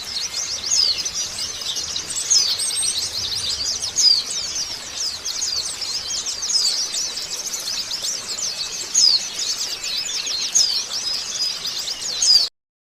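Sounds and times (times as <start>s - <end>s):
bird twittering song: 0.0s - 12.5s.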